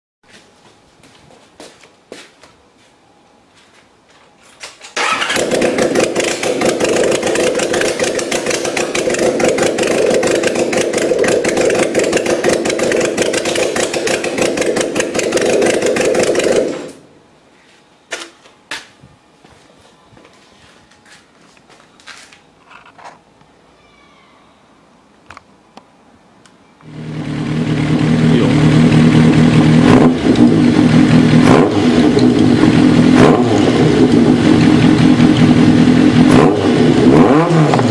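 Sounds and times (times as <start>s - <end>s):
motorcycle engine idling: 5.0s - 16.9s, 26.8s - 36.3s.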